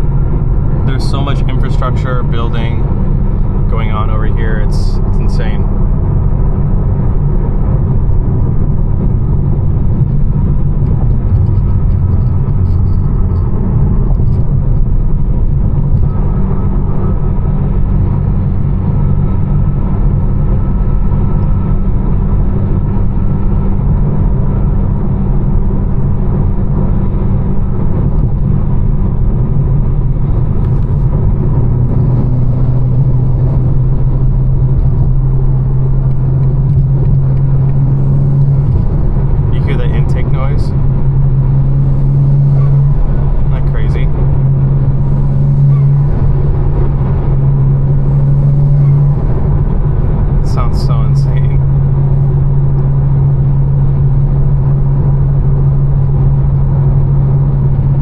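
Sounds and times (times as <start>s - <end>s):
car engine droning: 0.0s - 58.0s
road noise: 0.0s - 58.0s.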